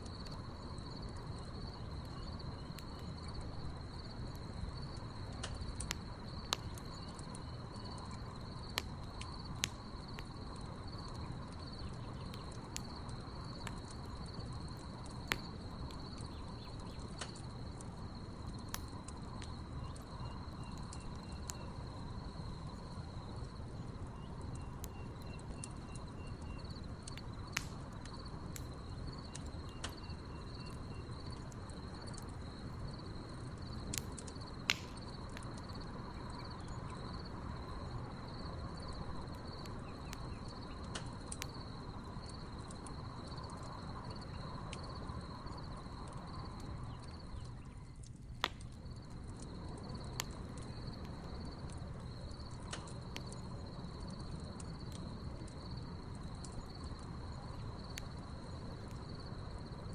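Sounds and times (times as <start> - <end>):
crickets chirping: 0.0 - 59.9
wood fire popping and crackling: 0.0 - 59.9.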